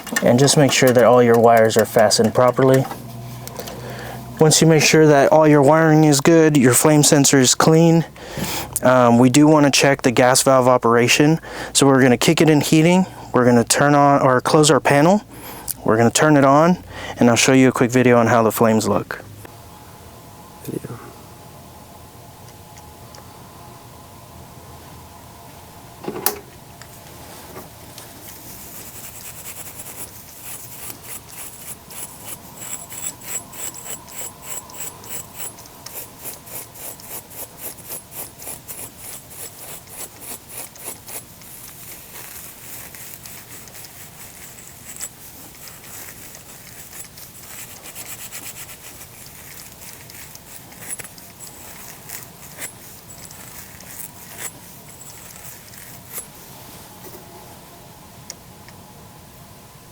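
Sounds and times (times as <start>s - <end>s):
faint steady hum: 0.0s - 59.9s
scrubbing strokes: 28.1s - 57.0s.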